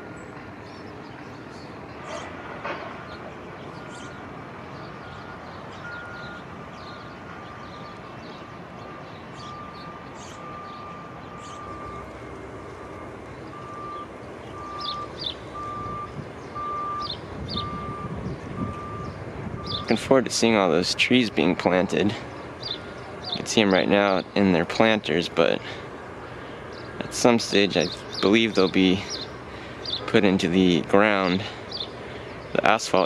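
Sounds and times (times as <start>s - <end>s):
outdoor background noise: 0.0s - 33.0s
vehicle reversing alarm beeping: 0.0s - 33.0s.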